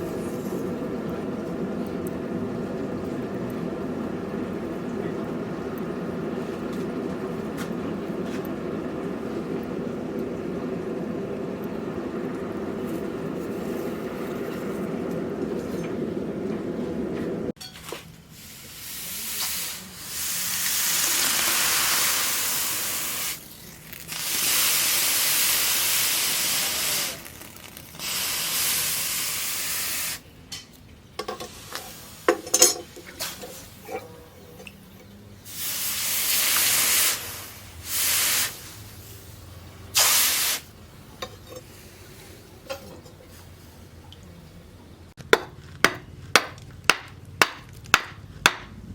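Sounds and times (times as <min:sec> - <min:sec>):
hot blade hissing in water: 0:18.4 - 0:30.2, 0:35.5 - 0:39.3, 0:40.0 - 0:40.7
metallic clanks: 0:30.5 - 0:35.2, 0:42.6 - 0:43.5.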